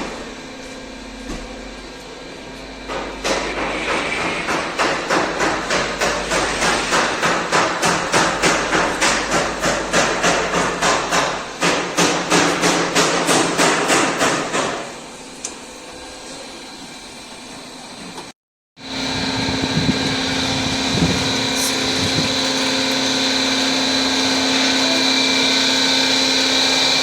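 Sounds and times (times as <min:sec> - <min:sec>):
steady machine hum: 0:18.8 - 0:27.0.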